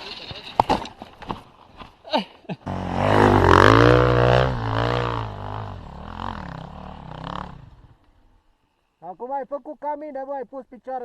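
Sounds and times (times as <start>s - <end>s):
motorcycle engine revving: 2.6s - 8.1s.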